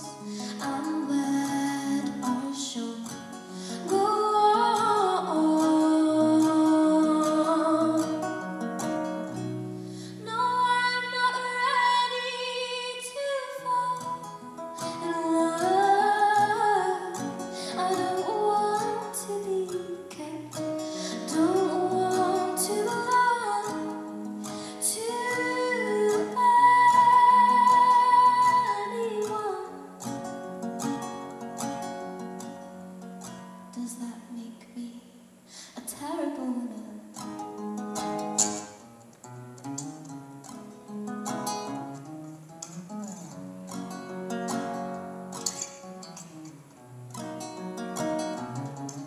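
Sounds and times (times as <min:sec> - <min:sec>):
woman singing: 0:00.0 - 0:08.6, 0:10.0 - 0:30.2, 0:33.7 - 0:37.4
acoustic guitar: 0:00.0 - 0:49.0.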